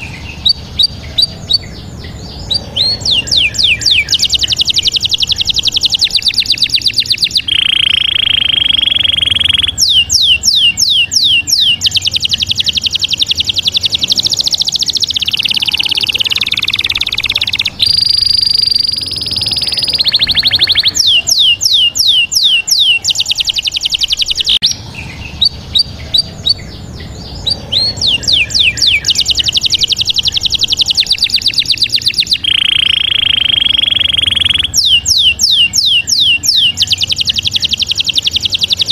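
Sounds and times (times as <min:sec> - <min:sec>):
bird chirping and whistling: 0:00.0 - 0:38.9.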